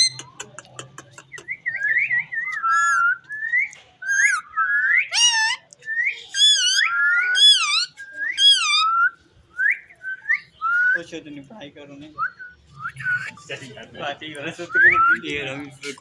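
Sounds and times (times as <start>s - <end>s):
parrot whistling: 0.0s - 0.3s, 1.5s - 11.0s.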